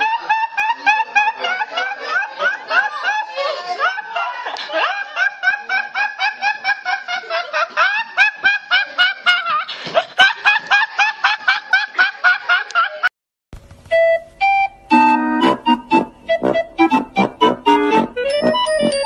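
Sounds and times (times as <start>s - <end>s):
boy laughing hard: 0.0s - 13.1s
electronic keyboard tune: 13.9s - 19.0s.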